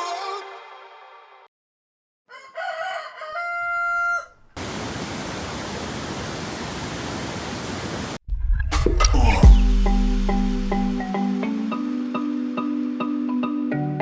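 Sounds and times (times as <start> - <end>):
rooster crowing: 2.3 - 5.0.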